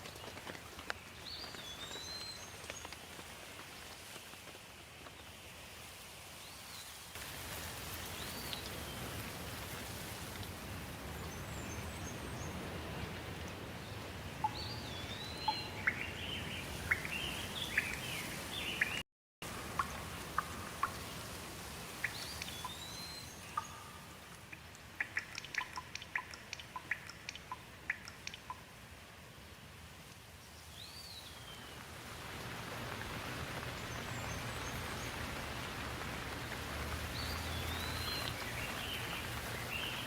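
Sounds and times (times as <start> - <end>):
rain hiss: 0.0 - 40.0.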